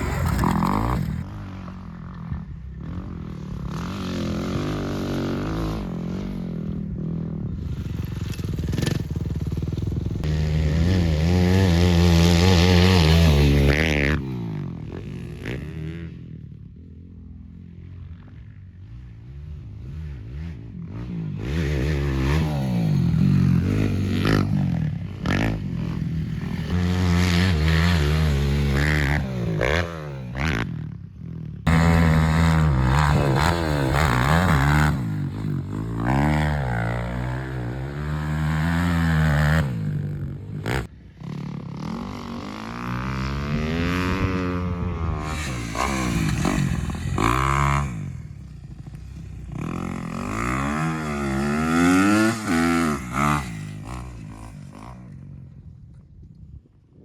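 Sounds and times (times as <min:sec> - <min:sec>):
quad engines revving: 0:00.0 - 0:01.3, 0:31.7 - 0:48.3, 0:49.5 - 0:54.6.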